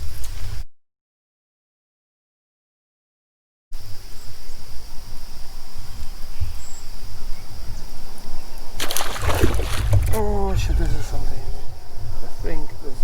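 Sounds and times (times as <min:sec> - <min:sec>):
insects buzzing: 0:08.3 - 0:13.0
rough splashy noise: 0:08.8 - 0:11.4
low rumble: 0:08.9 - 0:12.3.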